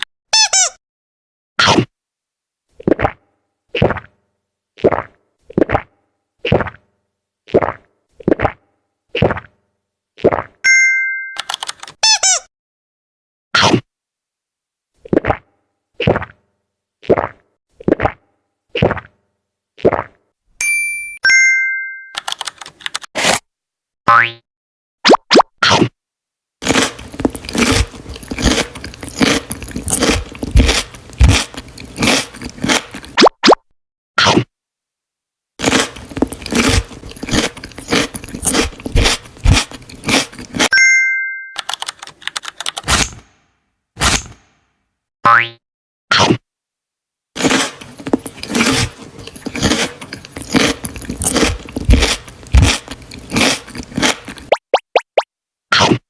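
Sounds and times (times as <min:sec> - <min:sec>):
chewing crunchy food: 0:26.6 - 0:33.2, 0:35.6 - 0:40.7, 0:47.4 - 0:54.6.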